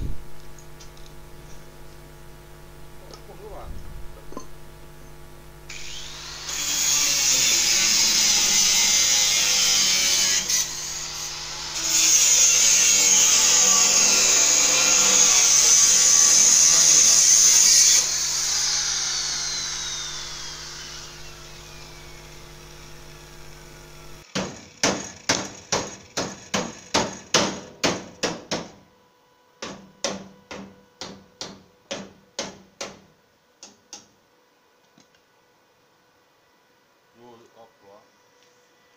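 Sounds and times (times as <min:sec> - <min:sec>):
power tool on sheet metal: 0:05.7 - 0:27.8
hammer striking sheet metal: 0:24.3 - 0:28.8.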